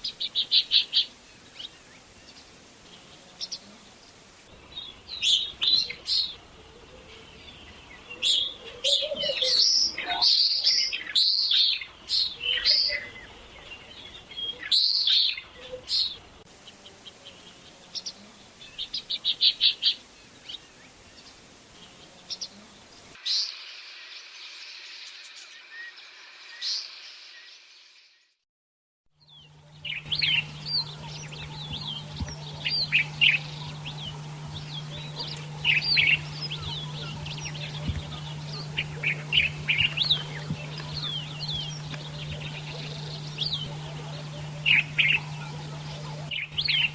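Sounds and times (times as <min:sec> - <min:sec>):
steady low hum: 0:29.2 - 0:46.9
swifts screaming: 0:29.5 - 0:46.9.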